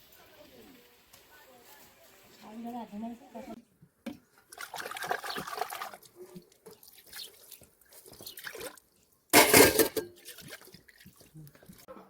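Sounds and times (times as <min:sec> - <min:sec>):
water dripping: 0:04.3 - 0:09.1, 0:09.8 - 0:11.9
water splashing: 0:04.5 - 0:11.9.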